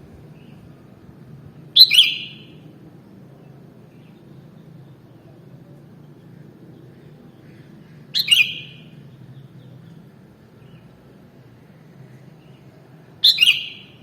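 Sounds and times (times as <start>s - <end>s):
bulbul calling: 1.8s - 2.6s, 7.4s - 9.6s, 13.2s - 14.0s.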